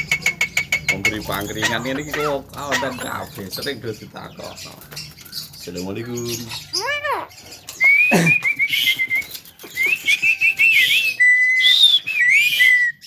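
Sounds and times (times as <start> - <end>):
bird trills: 0.0 - 13.0
bird whistling: 0.8 - 3.7, 6.2 - 13.0.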